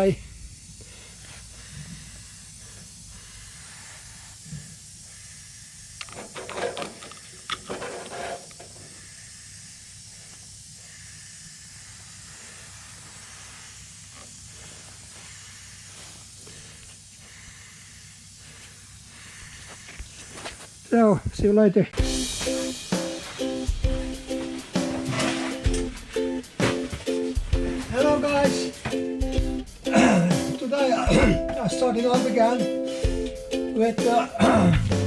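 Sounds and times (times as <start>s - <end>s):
faint hiss: 0.0s - 35.0s
handling noises: 22.0s - 35.0s.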